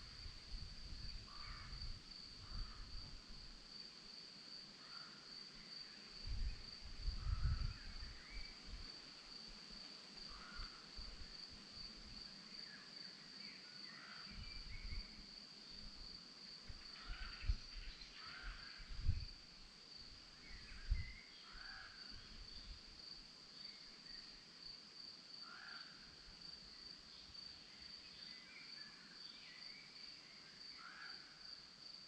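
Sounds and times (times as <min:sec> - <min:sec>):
crickets trilling: 0:00.0 - 0:32.0.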